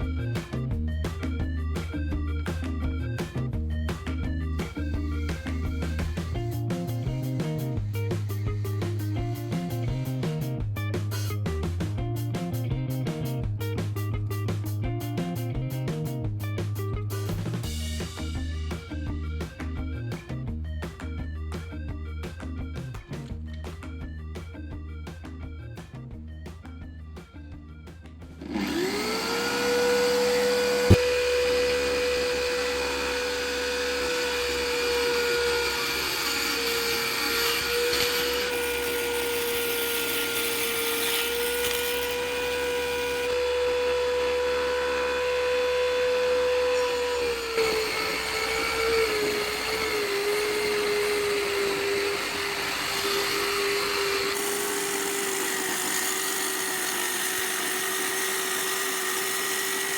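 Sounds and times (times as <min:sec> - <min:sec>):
circular saw blade whine: 0:00.0 - 0:10.5, 0:28.4 - 0:59.9.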